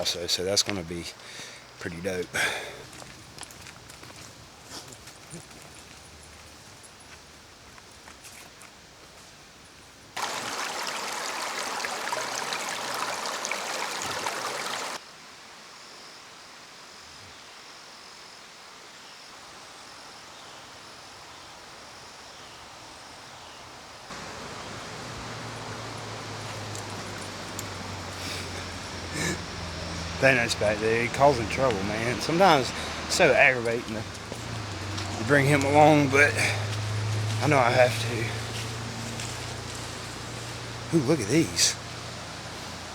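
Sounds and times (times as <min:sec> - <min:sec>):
stream water rushing: 0:10.2 - 0:15.0, 0:24.1 - 0:42.9.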